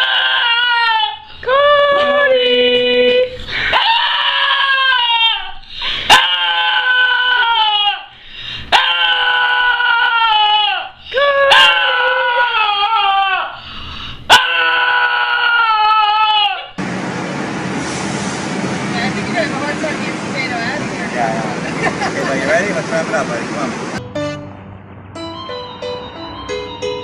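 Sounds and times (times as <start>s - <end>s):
dog howling: 0.0s - 2.2s, 3.7s - 8.1s, 8.7s - 13.6s, 14.3s - 16.8s.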